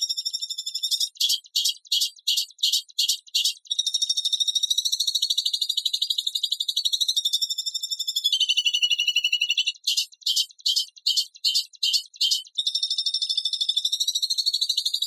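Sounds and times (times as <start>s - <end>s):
harsh bird chirps: 0.0s - 15.0s
fast buzzing bird trill: 6.5s - 14.4s.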